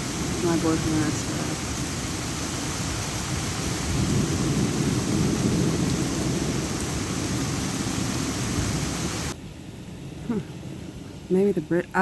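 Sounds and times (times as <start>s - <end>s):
heavy rain pouring: 0.0s - 9.4s
low rumble of thunder: 0.0s - 11.9s.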